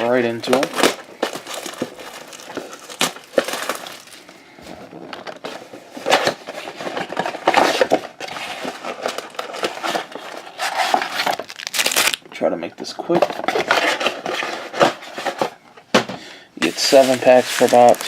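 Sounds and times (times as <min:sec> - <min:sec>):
packaging crinkling and tearing: 0:00.0 - 0:04.3, 0:04.9 - 0:12.2, 0:16.6 - 0:18.0.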